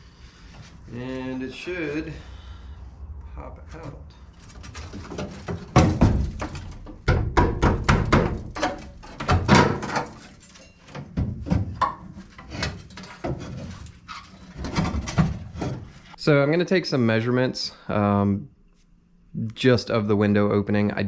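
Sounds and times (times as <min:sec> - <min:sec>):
metal clunks and rattles: 0:03.8 - 0:16.1.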